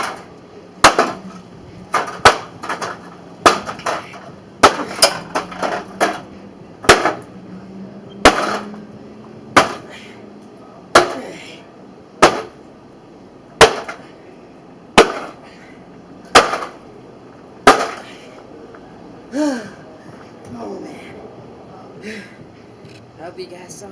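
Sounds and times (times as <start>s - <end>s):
hammer striking microwave: 9.6s - 9.9s.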